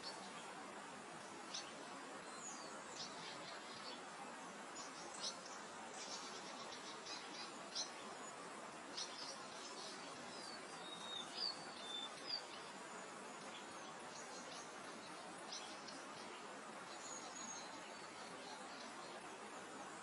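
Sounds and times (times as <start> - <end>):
soft wind: 0.0 - 20.0
small birds chirping: 1.2 - 20.0.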